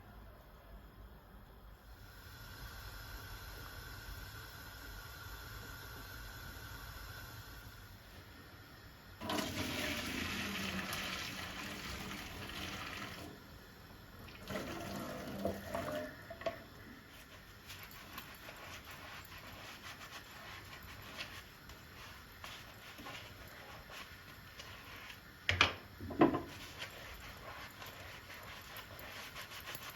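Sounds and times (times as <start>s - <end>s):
water running from tap into sink: 9.2s - 13.4s, 14.3s - 16.7s
knocks: 25.5s - 26.5s.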